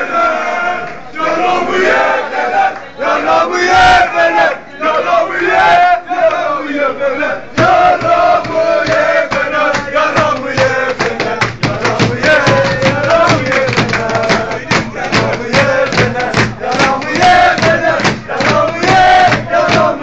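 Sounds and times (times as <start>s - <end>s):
crowd chanting and singing: 0.0s - 20.0s
rhythmic drum beats: 7.6s - 20.0s.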